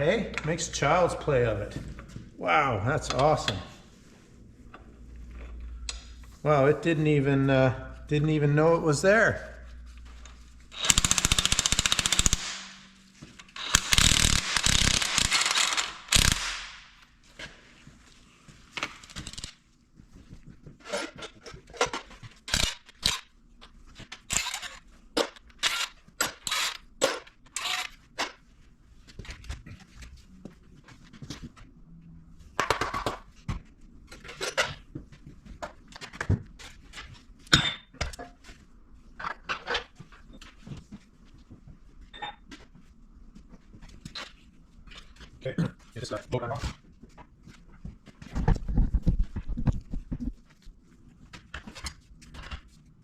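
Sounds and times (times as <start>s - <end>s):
impact wrench rattling: 10.7s - 12.9s, 13.6s - 16.9s, 19.0s - 19.6s.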